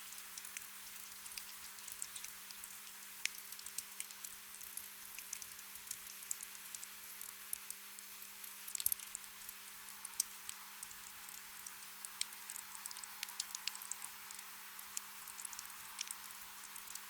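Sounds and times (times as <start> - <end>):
gentle rain hissing: 0.0 - 17.0
raindrops ticking: 0.1 - 9.3, 10.0 - 17.0.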